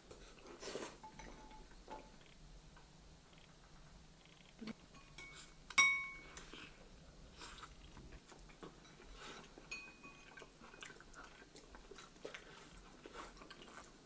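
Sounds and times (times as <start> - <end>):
tableware clinking: 1.0 - 2.2, 4.9 - 6.5, 9.7 - 10.4
faint chewing: 6.2 - 14.0.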